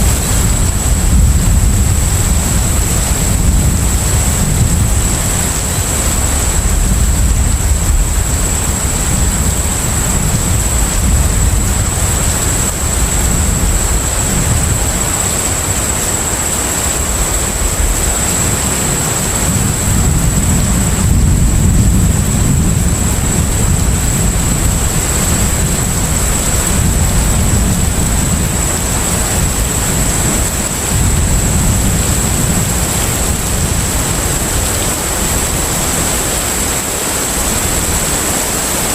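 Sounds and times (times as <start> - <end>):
ship engine rumble: 0.0 - 38.9.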